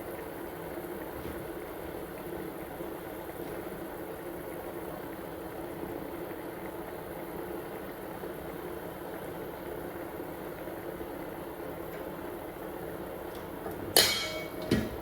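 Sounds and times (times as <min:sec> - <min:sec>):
soup boiling and bubbling: 0:00.0 - 0:15.0.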